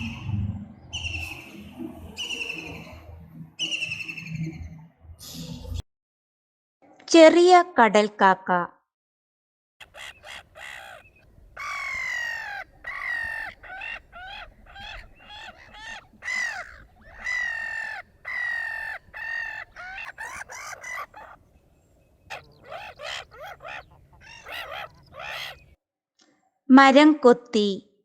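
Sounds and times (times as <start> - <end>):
gull calls: 9.8 - 21.6, 22.2 - 25.8.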